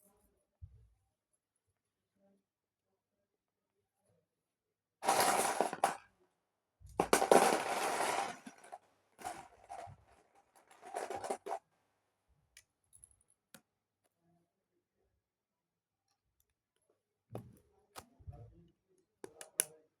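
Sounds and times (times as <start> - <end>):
plastic bricks rattling: 5.0 - 6.0, 7.0 - 11.6
plastic pieces clicking: 7.0 - 9.9.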